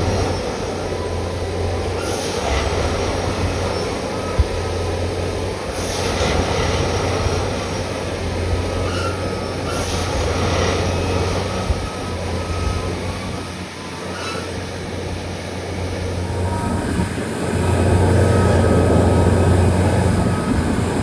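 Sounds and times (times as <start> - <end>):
machine engine drone: 0.0 - 21.0.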